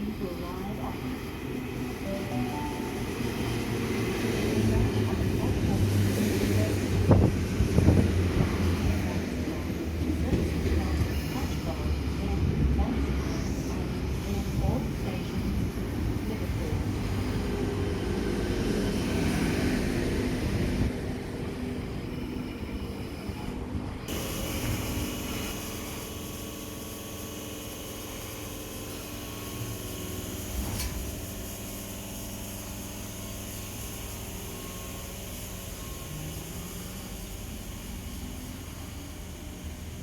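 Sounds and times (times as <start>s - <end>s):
train rumbling: 0.0s - 22.5s
steady hum with whining tones: 0.0s - 40.0s.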